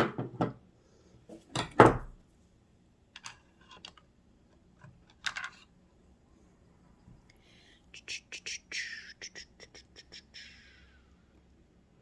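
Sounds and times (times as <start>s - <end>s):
metal parts clicking and tapping: 3.1s - 4.1s, 4.8s - 5.7s.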